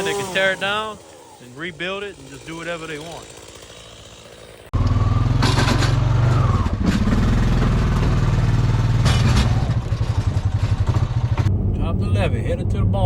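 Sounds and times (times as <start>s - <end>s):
vehicle engine rumbling: 4.5s - 13.0s.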